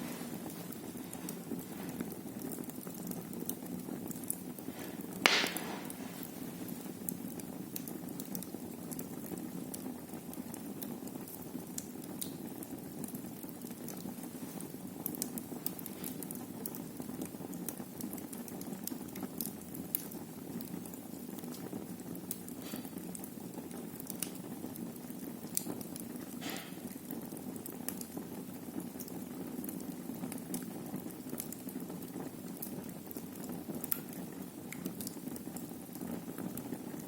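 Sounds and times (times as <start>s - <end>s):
fire crackling: 0.0s - 37.0s
wood fire burning: 0.0s - 37.0s
loud pop from fire: 5.2s - 6.3s, 26.3s - 26.9s.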